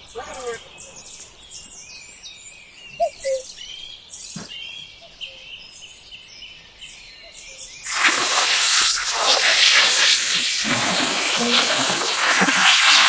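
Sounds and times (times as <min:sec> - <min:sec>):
songbirds chirping and singing: 0:00.0 - 0:07.9
short low bird notes: 0:02.8 - 0:05.3.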